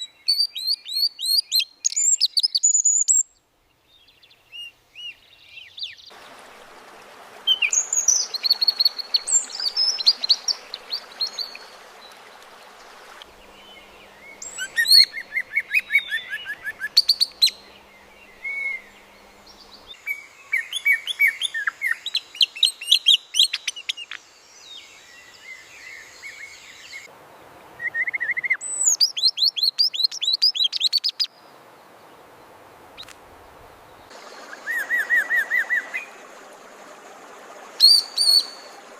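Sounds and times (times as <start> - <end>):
faint background hiss: 0.0 - 38.9
bird chirps and trills: 4.4 - 24.1, 34.0 - 38.9.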